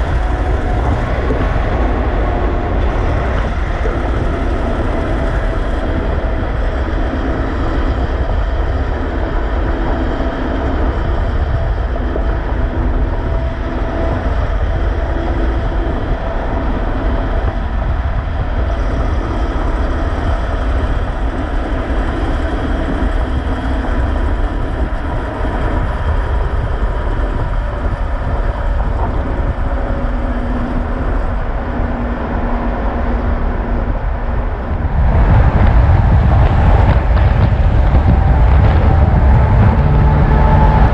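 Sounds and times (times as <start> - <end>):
heavy road traffic rumble: 0.0 - 40.9
trucks passing: 29.7 - 40.9.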